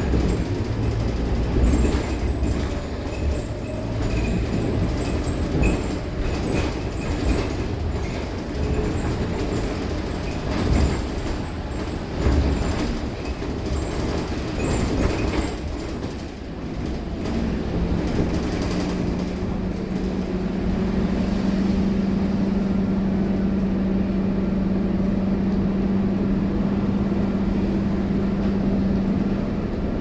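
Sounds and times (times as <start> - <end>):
rattles and knocks: 0.0 - 20.2
bus diesel engine running: 0.0 - 30.0.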